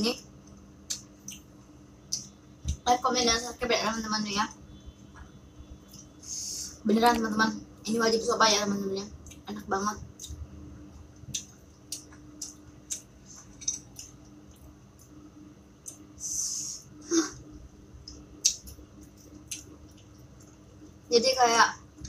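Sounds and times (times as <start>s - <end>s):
person chewing crunchy food: 11.2s - 15.2s
hiss of breath: 16.2s - 16.9s.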